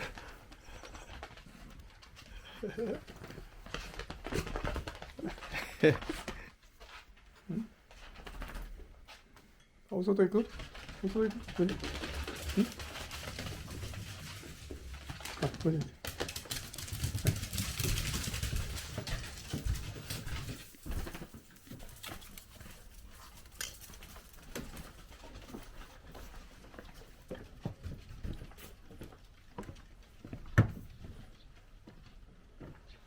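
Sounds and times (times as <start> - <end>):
rustling: 10.4 - 27.2
dog claws clicking on floor: 10.5 - 26.4.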